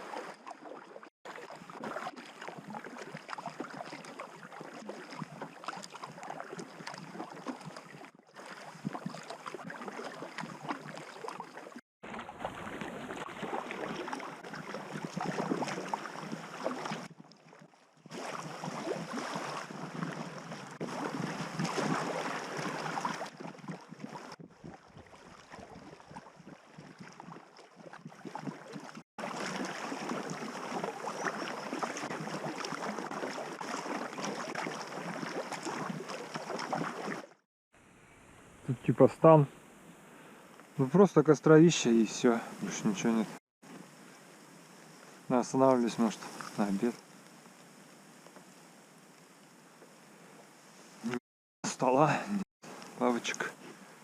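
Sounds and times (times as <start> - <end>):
river water rushing and splashing: 0.0 - 17.1, 18.1 - 24.3, 28.2 - 37.4
wind on microphone: 24.4 - 26.2.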